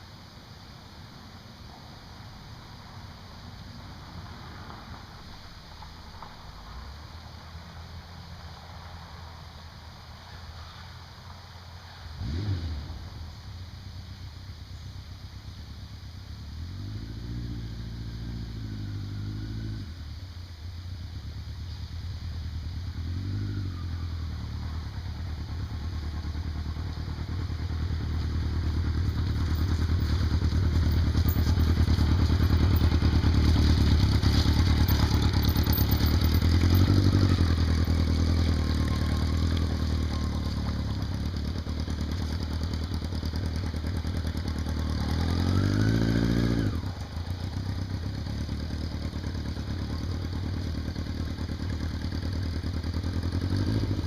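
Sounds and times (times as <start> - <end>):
vehicle engine revving: 12.2 - 13.6, 16.3 - 20.2, 21.2 - 54.0.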